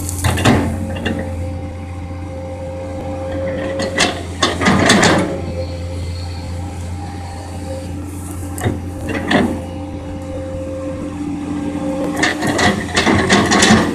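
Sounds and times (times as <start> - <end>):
excavator engine running: 0.0 - 13.9
scraping clattering noise: 8.3 - 9.7, 12.0 - 13.9.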